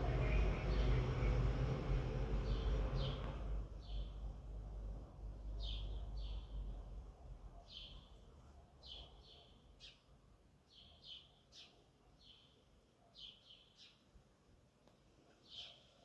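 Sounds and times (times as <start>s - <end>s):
faint low hum: 0.0s - 8.8s.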